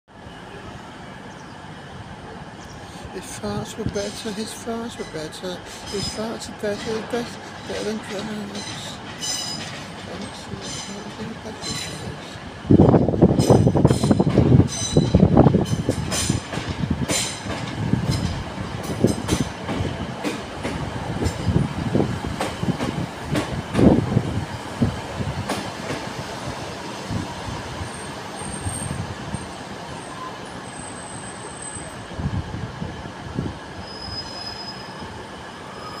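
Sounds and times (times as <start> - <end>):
train wheels clicking over joints: 5.0 - 26.6
wheel squeals: 33.8 - 35.1.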